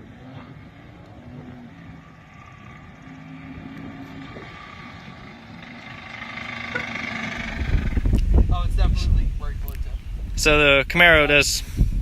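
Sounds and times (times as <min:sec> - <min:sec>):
car engine droning at high revs: 0:00.0 - 0:08.5.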